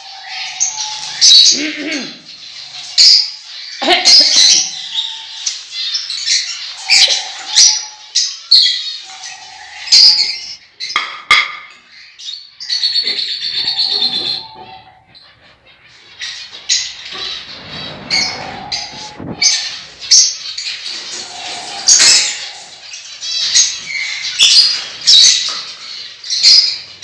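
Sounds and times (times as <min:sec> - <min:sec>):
parrots squawking: 0:00.0 - 0:11.0, 0:12.6 - 0:27.0
parrots chattering rapidly: 0:00.1 - 0:05.6, 0:16.8 - 0:25.6.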